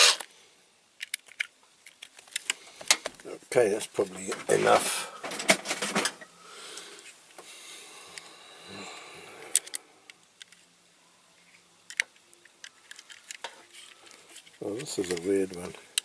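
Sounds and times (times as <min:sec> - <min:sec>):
metal clicks of toy car: 0:01.0 - 0:03.1, 0:11.9 - 0:12.2
faint rustling handling: 0:02.1 - 0:06.2, 0:12.7 - 0:16.0.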